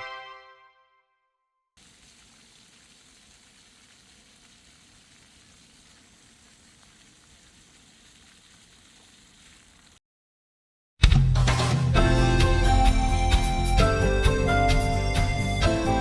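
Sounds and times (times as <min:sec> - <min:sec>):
faint room tone hiss: 0:01.8 - 0:10.0.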